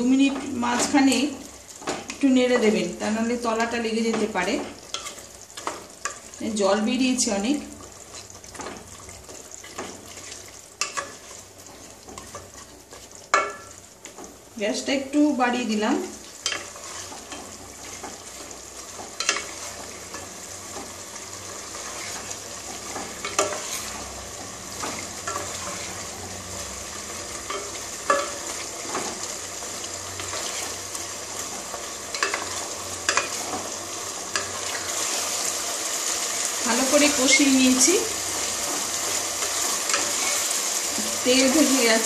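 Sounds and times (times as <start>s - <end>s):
chicken sizzling in oil: 0.0s - 42.0s
spatula knocking and scraping pot: 8.4s - 14.3s, 16.4s - 21.0s, 21.6s - 26.0s, 27.3s - 29.3s.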